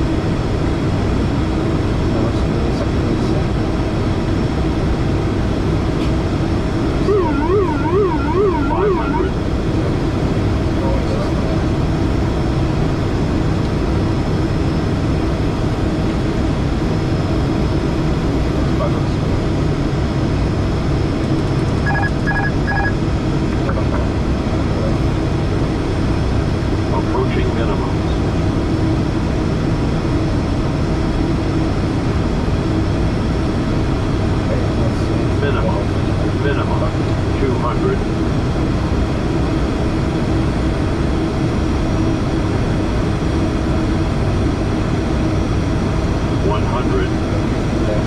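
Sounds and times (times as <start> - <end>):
cockpit engine and airflow noise: 0.0 - 48.0
short electronic beeps: 7.0 - 9.4, 21.8 - 23.0.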